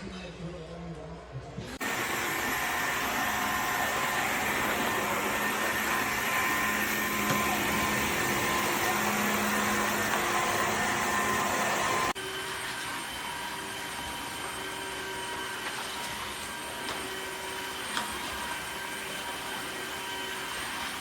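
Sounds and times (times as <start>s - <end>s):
vacuum cleaner suction hiss: 1.8s - 12.2s, 16.4s - 21.0s
vacuum motor whine: 1.8s - 21.0s.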